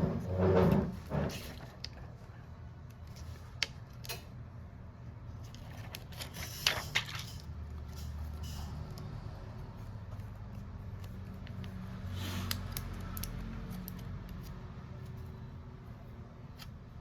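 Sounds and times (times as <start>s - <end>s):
small tools clicking and tapping: 10.0s - 15.2s.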